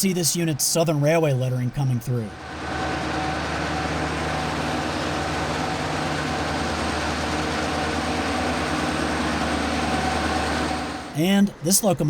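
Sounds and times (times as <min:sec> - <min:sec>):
diesel locomotive engine drone: 0:00.0 - 0:12.0.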